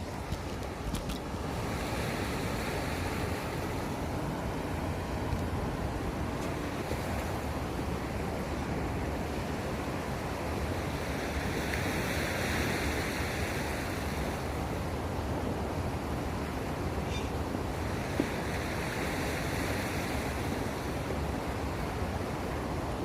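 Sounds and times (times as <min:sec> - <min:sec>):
seawater washing: 0:00.0 - 0:10.0.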